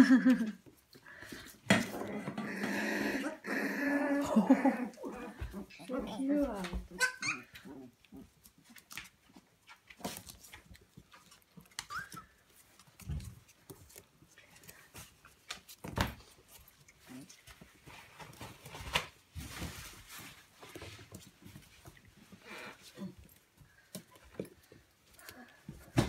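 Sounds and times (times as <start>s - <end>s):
puppies scuffling and rustling: 0.2s - 2.6s, 4.3s - 26.0s
puppy squeak: 6.9s - 7.6s, 11.8s - 12.4s.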